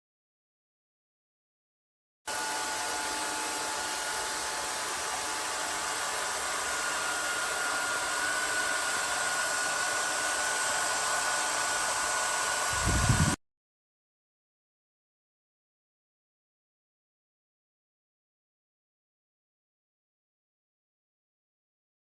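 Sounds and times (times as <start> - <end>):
small motor whining: 2.3 - 13.4.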